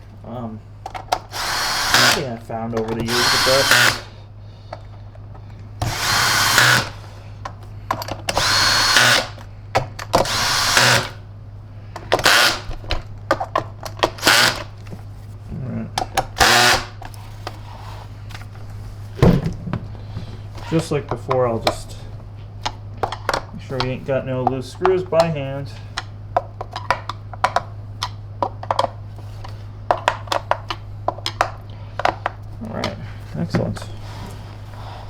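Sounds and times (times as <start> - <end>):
cordless drill driving screws: 1.3 - 2.3, 3.0 - 4.1, 5.8 - 7.0, 8.3 - 9.4, 10.2 - 11.2, 12.2 - 12.7, 14.1 - 14.7, 16.4 - 17.0.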